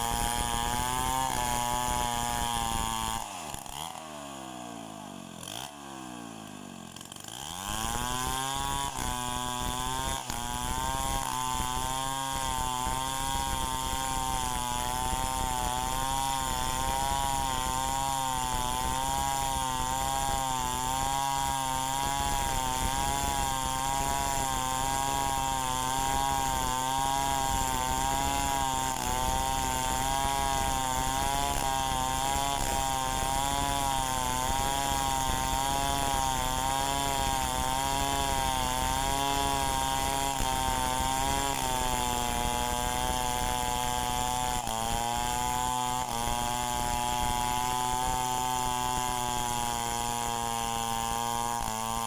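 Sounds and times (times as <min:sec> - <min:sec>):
chainsaw engine at high revs: 0:00.0 - 0:52.0.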